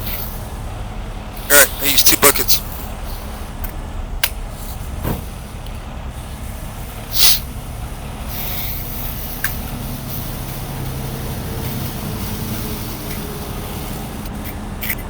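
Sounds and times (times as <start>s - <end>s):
truck diesel engine running: 0.0s - 15.0s
air release hiss: 5.0s - 5.6s, 6.2s - 7.7s, 8.3s - 14.7s.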